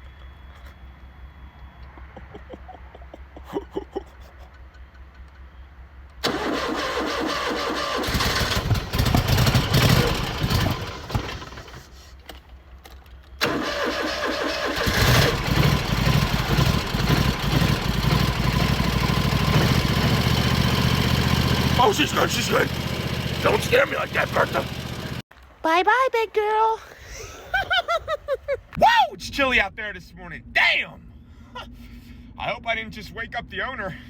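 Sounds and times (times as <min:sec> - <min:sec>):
lawn mower engine running: 0:06.2 - 0:12.2, 0:13.4 - 0:25.2.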